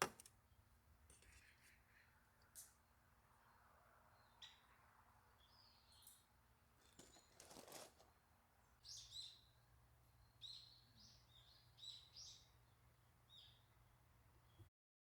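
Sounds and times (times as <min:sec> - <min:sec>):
brief rustle: 0:06.8 - 0:08.1.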